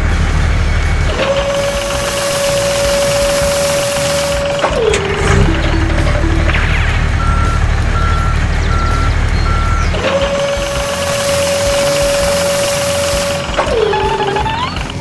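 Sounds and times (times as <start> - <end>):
low engine rumble: 0.0 - 15.0
reversing alarm beeps: 7.2 - 14.9.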